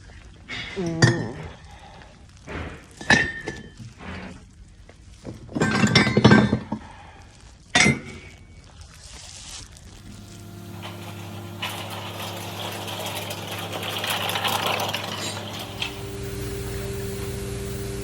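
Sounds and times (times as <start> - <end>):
metal tools clinking: 10.1 - 16.0.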